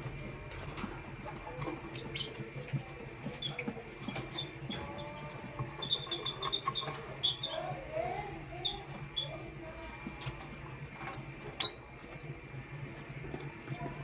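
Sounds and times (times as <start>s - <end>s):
lovebirds chirping: 1.6s - 9.5s, 11.0s - 12.3s.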